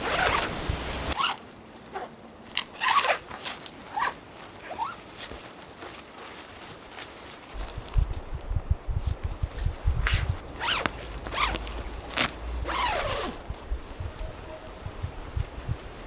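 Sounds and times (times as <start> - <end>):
wind rumbling on microphone: 0.0 - 1.2, 7.5 - 16.0
zipper pulled: 0.0 - 5.4, 9.0 - 14.6.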